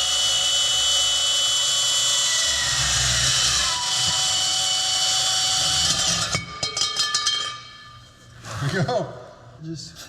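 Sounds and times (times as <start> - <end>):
bandsaw cutting steel pipe: 0.0 - 6.6.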